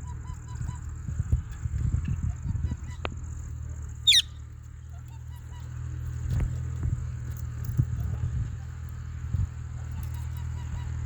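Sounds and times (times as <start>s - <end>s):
parrot squawk: 4.0s - 4.3s.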